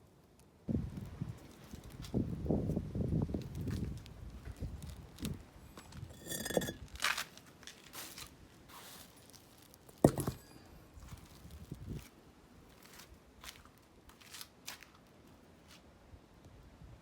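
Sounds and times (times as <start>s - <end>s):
ringing clink: 6.1s - 6.8s.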